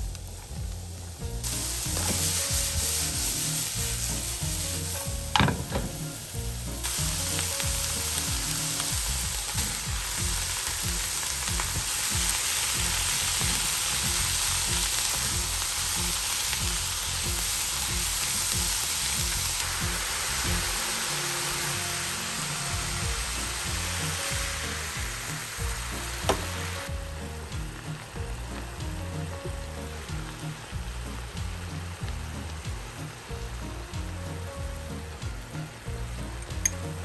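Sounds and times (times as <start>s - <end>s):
food sizzling in a pan: 0.0s - 37.0s
sharp knock: 5.4s - 6.1s.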